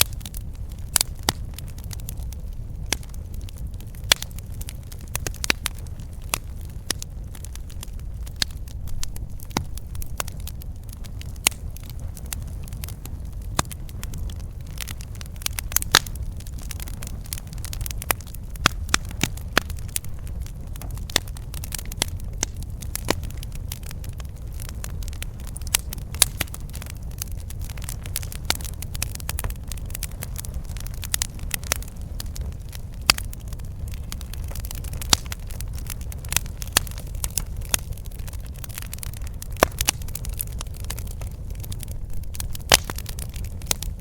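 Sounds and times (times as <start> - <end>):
campfire crackling and popping: 0.0 - 44.0
low rumble of flames: 0.0 - 44.0.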